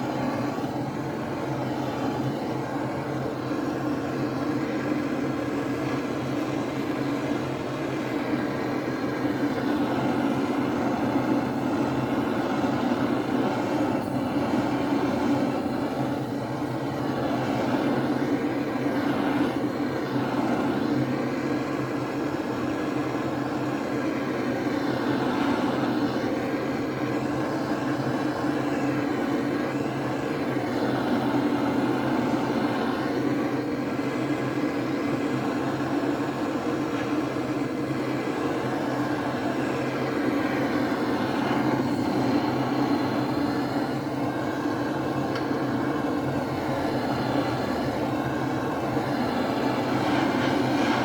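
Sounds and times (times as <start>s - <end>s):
heat gun running: 0.0s - 51.0s.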